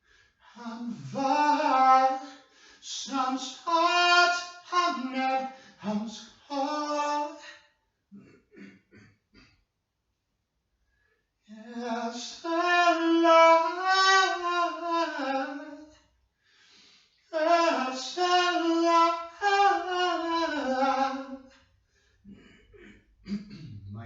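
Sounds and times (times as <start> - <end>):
person singing unaccompanied: 0.6 - 2.2, 2.9 - 7.5, 11.6 - 15.8, 17.4 - 21.4.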